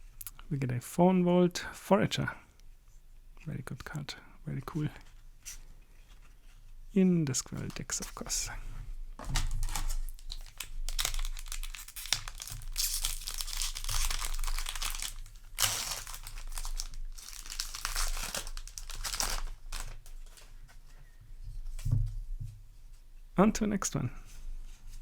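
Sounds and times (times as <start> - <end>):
plastic wrapper crinkling and tearing: 9.2 - 20.6.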